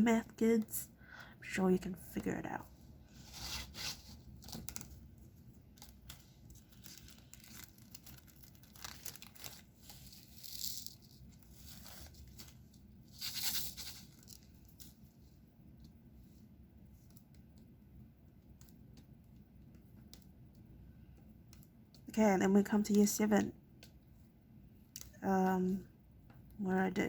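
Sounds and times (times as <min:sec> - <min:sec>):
small clicks and taps: 0:17.0 - 0:22.1.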